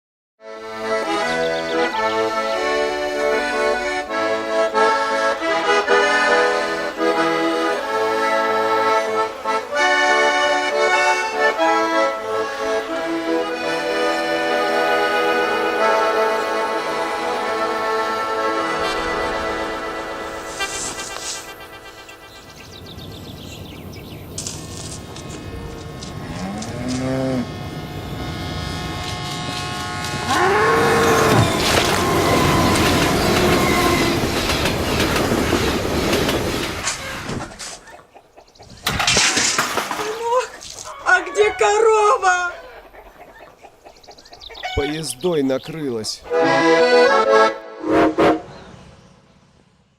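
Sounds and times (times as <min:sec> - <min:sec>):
accordion music: 0:00.4 - 0:36.2, 0:40.7 - 0:48.8
train hum: 0:00.6 - 0:38.4
cow mooing: 0:25.8 - 0:33.9.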